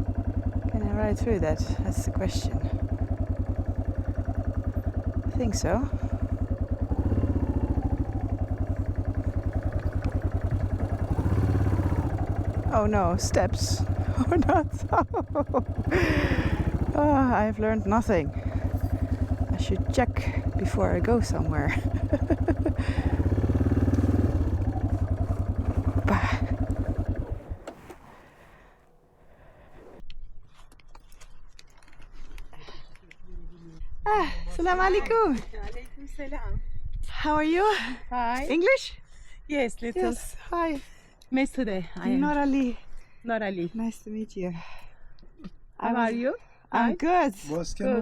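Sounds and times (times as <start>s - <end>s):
single-cylinder motorcycle engine thumping: 0.0s - 28.2s.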